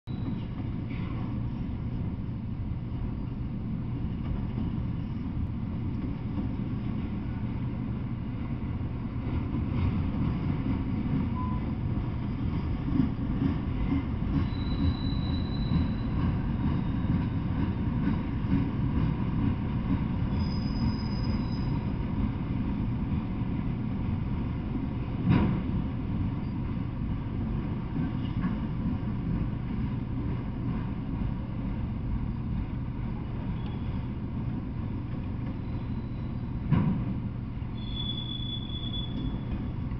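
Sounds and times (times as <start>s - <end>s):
high-pitched wheel squeals: 0.1s - 0.5s, 14.4s - 16.2s, 20.3s - 21.9s, 33.5s - 34.1s, 35.6s - 36.6s, 37.7s - 39.7s
steel wheels rumbling on rails: 0.1s - 39.9s.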